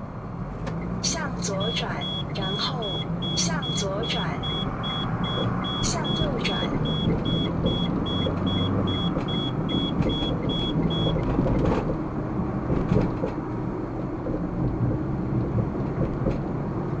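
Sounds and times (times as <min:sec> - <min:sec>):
car road and engine noise: 0:00.0 - 0:17.0
short high electronic beeps: 0:01.1 - 0:11.2.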